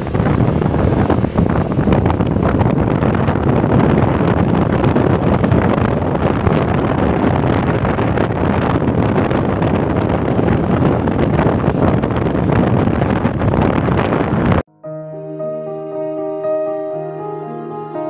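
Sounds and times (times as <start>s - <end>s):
wind rush on microphone: 0.0s - 14.7s.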